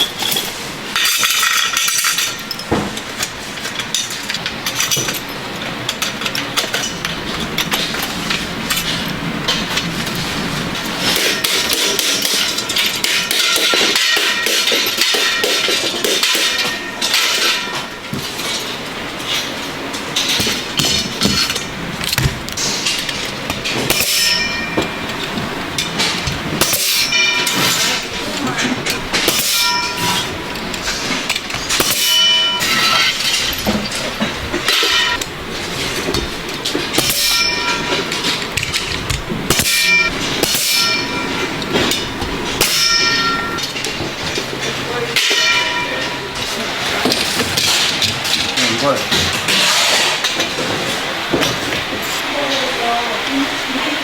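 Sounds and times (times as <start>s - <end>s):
metal clanging with bell-like ring: 0.0s - 7.7s, 11.0s - 21.7s, 22.6s - 35.2s, 36.9s - 38.9s, 39.5s - 49.0s.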